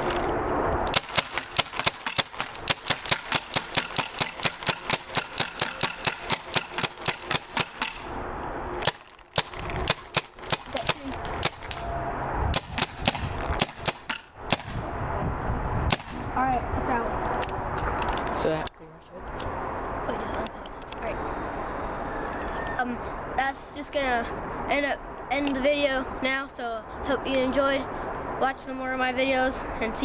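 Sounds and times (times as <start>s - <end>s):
paintball marker firing rapidly: 0.9s - 8.1s, 8.8s - 11.8s, 12.5s - 14.8s, 15.9s - 16.2s.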